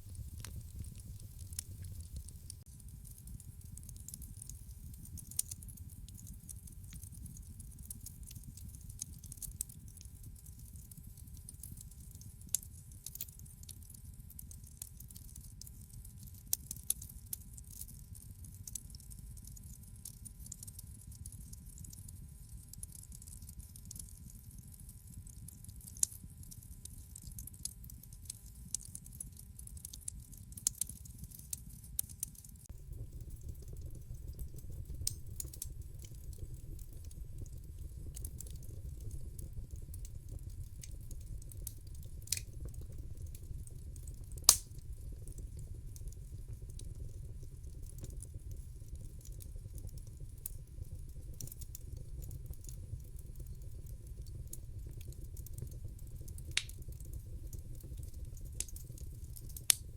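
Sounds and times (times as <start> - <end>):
fire flames rumbling: 0.0 - 12.5, 32.7 - 59.9
fire popping and snapping: 0.0 - 19.7, 25.1 - 59.9.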